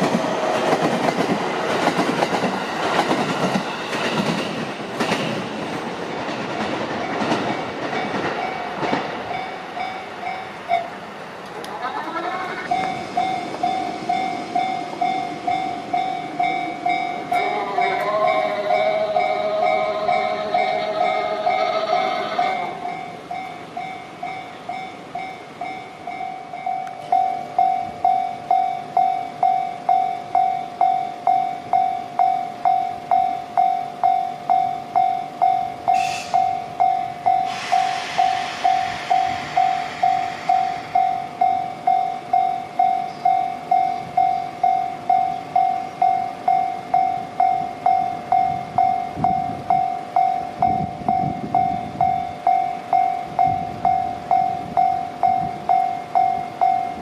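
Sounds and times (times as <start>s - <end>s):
low train rumble: 0.0s - 57.0s
level-crossing bell dinging: 7.1s - 11.0s, 12.6s - 57.0s
short hiss: 35.9s - 36.4s, 37.4s - 41.0s.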